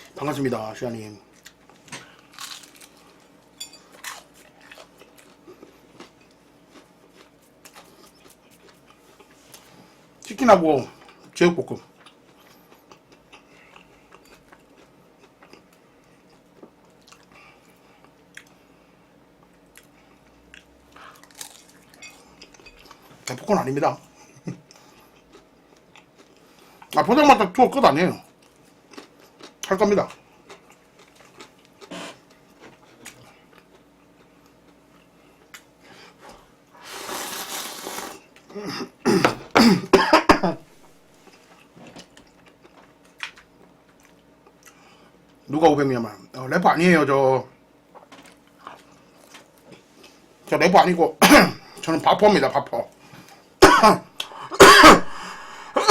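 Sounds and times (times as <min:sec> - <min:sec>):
person chewing food: 0:01.3 - 0:09.7, 0:12.0 - 0:18.6, 0:19.4 - 0:23.1, 0:24.5 - 0:27.0, 0:28.4 - 0:35.8, 0:41.2 - 0:45.4
person coughing: 0:38.5 - 0:40.6, 0:51.2 - 0:51.7, 0:53.6 - 0:55.9.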